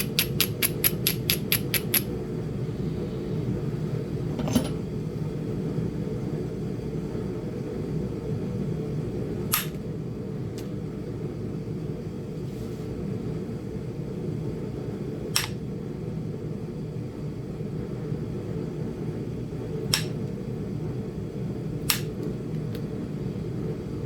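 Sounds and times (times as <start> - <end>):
stone knapping clicks: 0.0 - 2.1, 19.9 - 20.2, 21.9 - 22.9
space heater humming: 0.0 - 24.0.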